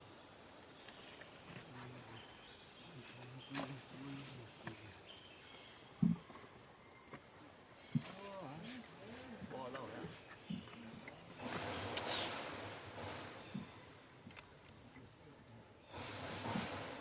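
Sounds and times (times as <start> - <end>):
insects trilling: 0.0 - 17.0
faint low voices: 1.6 - 5.0
soft thump: 6.0 - 6.3.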